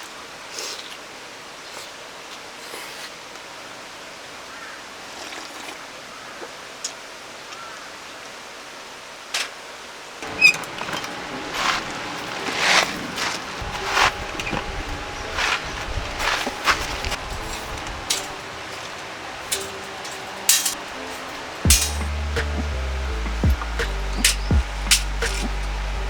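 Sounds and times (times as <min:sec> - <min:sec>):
stream rushing: 0:09.0 - 0:26.0
sharp clicks and knocks: 0:21.6 - 0:26.0.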